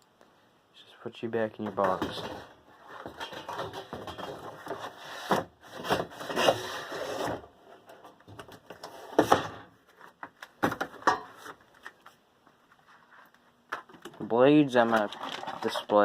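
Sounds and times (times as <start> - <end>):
rubbing and scraping cardboard: 1.8 - 7.5.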